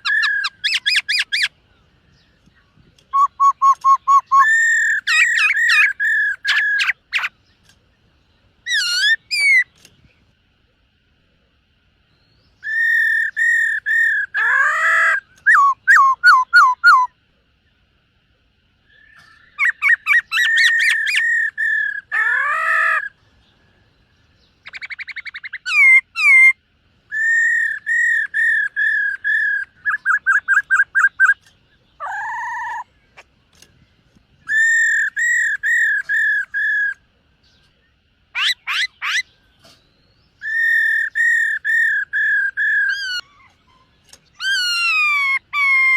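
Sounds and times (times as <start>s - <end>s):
bird singing whistled notes: 0.0s - 10.2s, 12.0s - 17.2s, 18.8s - 45.9s.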